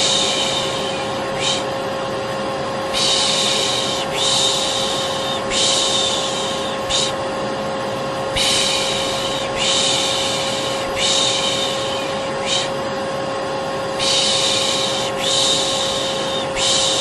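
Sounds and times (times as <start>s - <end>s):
person shushing: 0.0s - 1.7s, 2.9s - 7.2s, 14.0s - 17.0s
vacuum cleaner motor humming: 0.0s - 17.0s.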